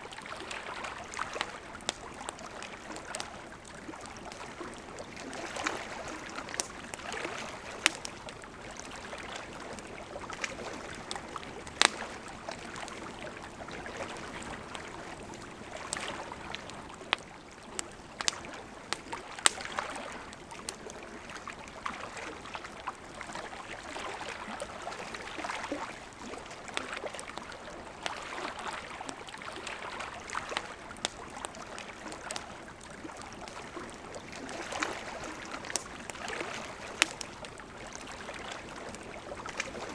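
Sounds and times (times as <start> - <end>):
wood crackling and popping: 0.1 - 21.5, 29.0 - 39.9
campfire flames hissing: 0.4 - 21.7, 25.2 - 39.9
sharp snaps of burning wood: 1.3 - 13.0, 15.4 - 20.9, 30.5 - 32.5, 33.2 - 39.8.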